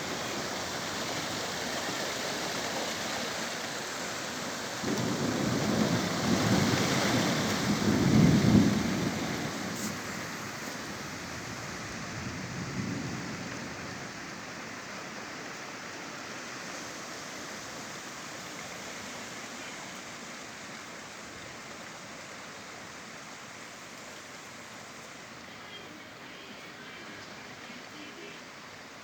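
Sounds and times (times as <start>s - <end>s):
steady rain hiss: 0.0s - 29.0s
thunder rumbling: 4.7s - 14.8s.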